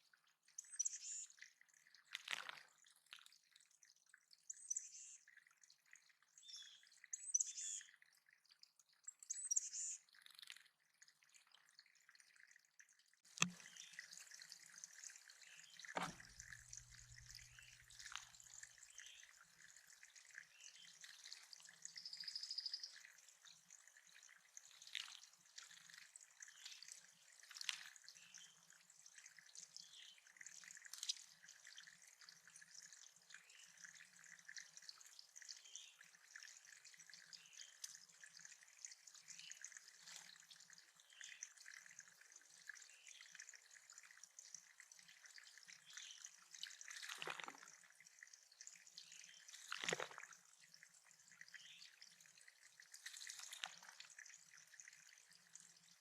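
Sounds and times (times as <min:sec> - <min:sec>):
water dripping and trickling: 0:00.0 - 0:56.0
songbirds singing: 0:00.5 - 0:01.5, 0:04.4 - 0:05.5, 0:06.3 - 0:10.2, 0:13.4 - 0:23.6, 0:26.4 - 0:27.4, 0:28.0 - 0:30.4, 0:37.2 - 0:38.1, 0:45.8 - 0:46.4, 0:51.4 - 0:52.0.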